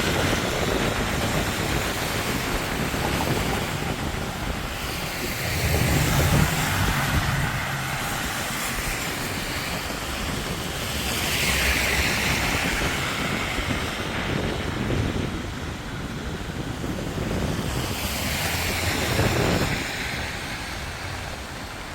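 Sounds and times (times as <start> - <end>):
steady rain: 0.0 - 21.9
traffic on wet road: 0.0 - 21.9
vehicle passing rumble: 1.0 - 14.7.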